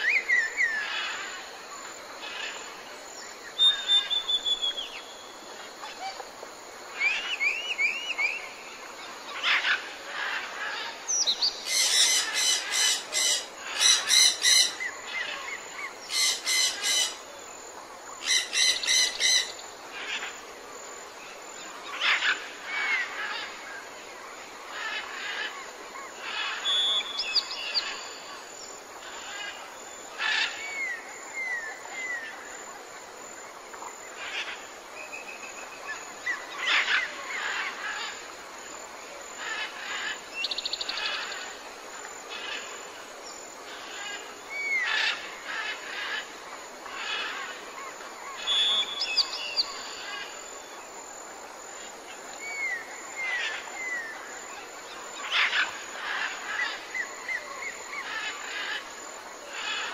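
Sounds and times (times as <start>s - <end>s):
bird chirps and whistles: 3.6s - 4.9s.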